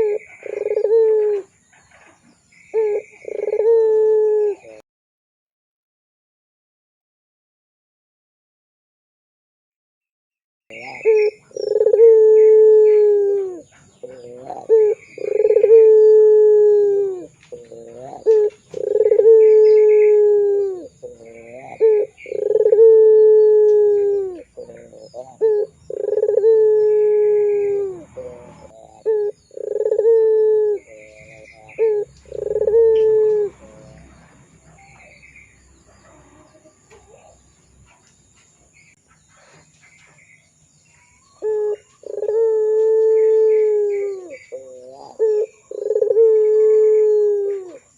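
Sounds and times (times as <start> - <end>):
dove cooing: 0.0 - 4.8, 10.7 - 35.2, 35.9 - 37.4, 41.3 - 47.9.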